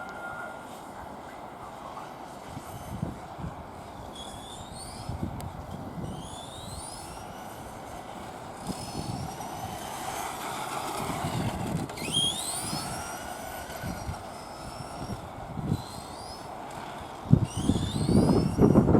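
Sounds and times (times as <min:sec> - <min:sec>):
electric motor and gearbox whining: 0:04.0 - 0:18.9.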